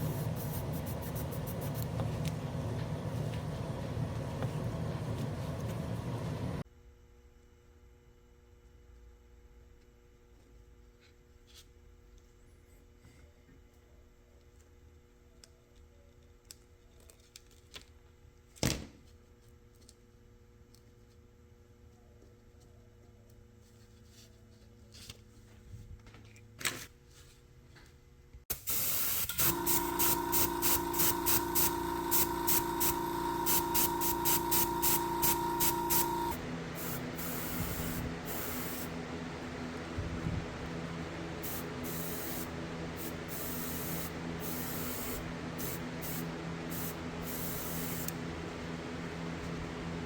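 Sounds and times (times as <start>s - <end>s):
steady hum: 0.0s - 6.7s, 28.5s - 50.0s
spray hiss: 28.5s - 38.9s, 41.4s - 48.1s.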